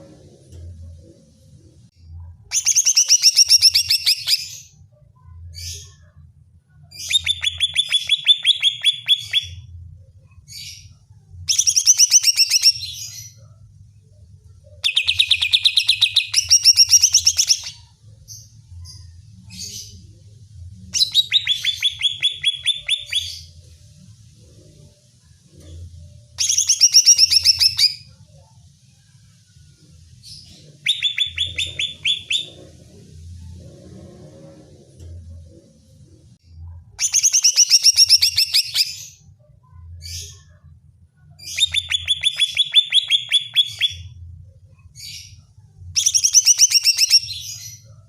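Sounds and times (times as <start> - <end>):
bird singing rapid notes: 21.0 - 23.5, 30.8 - 32.6.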